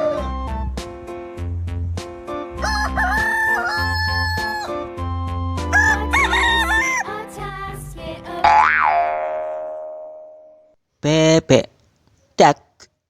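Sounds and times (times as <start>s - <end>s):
rooster crowing: 2.6s - 4.8s, 5.7s - 7.2s.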